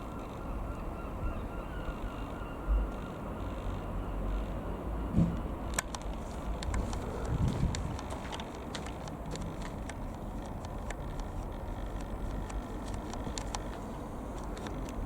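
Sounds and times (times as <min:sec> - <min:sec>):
thumps on microphone: 0:05.2 - 0:05.4
light clicks: 0:05.7 - 0:15.0.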